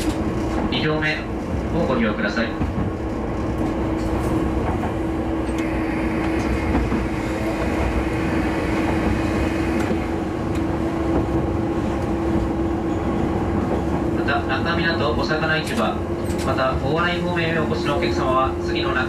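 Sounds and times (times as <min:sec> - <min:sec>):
railcar running drone: 0:00.0 - 0:19.0
wheels clicking over rails: 0:02.7 - 0:10.7.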